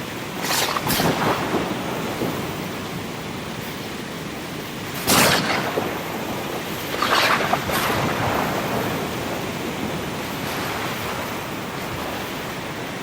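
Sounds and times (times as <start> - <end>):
rain: 0.0 - 13.0
sea surf: 0.0 - 13.0
thunder cracks: 0.8 - 3.2, 5.0 - 12.7.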